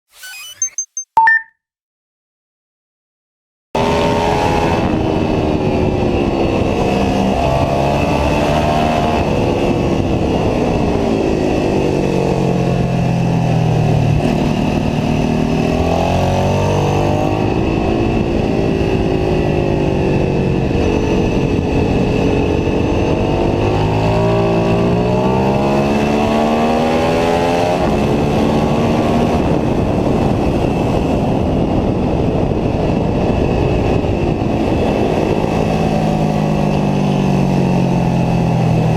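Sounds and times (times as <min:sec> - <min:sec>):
motorcycle engine revving: 0:03.8 - 0:30.2.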